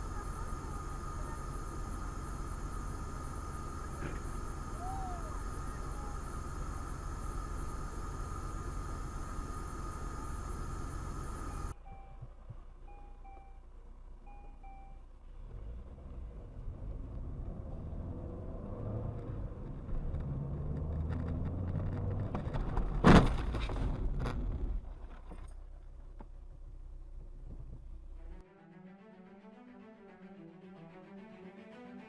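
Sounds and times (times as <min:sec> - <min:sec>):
car engine and road rumble: 0:00.0 - 0:28.4
short electronic beeps: 0:11.8 - 0:15.1.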